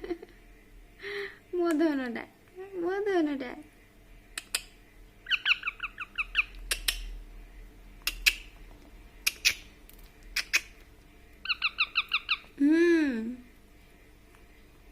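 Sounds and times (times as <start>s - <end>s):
baby parrot chirping: 4.4s - 7.2s, 8.1s - 8.6s, 9.2s - 10.8s, 11.4s - 12.6s.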